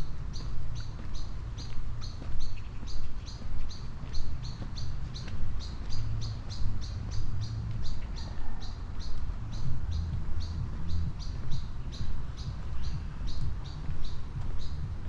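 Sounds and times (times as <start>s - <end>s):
bird chirping: 0.0s - 15.0s
footsteps: 0.0s - 15.0s
low rumble: 3.0s - 15.0s.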